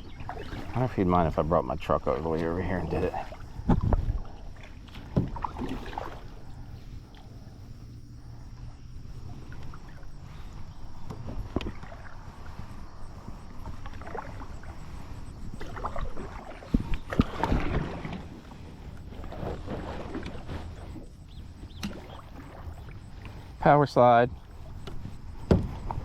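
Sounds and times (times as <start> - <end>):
paddle splashing water: 0.0 - 26.0
sharp knocks: 24.8 - 25.8.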